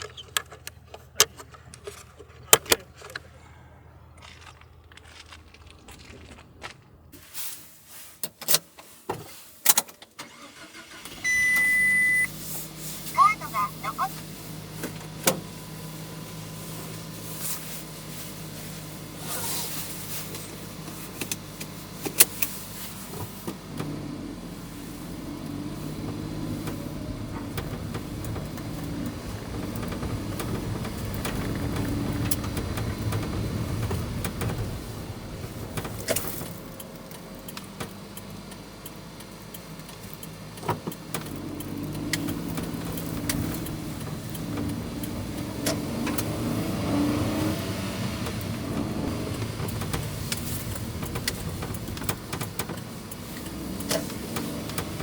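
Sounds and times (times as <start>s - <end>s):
truck engine running: 10.3s - 55.0s
clicks and knocks in cab: 26.0s - 38.0s, 48.2s - 55.0s.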